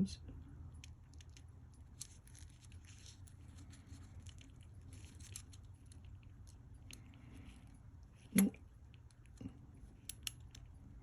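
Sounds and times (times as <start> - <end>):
low steady hum: 0.0 - 11.0
watch parts clicking: 10.0 - 10.7.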